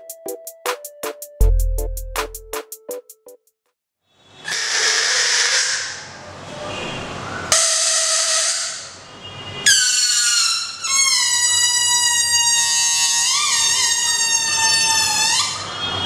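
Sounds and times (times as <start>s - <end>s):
balloon neck squealing: 9.6s - 15.8s.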